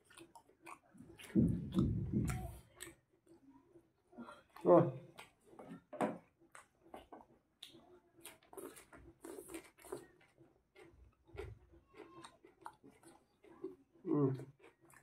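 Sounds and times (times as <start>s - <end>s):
wet mouth clicks: 0.0s - 3.0s
person chewing and lip-smacking: 0.0s - 3.4s, 6.4s - 15.0s.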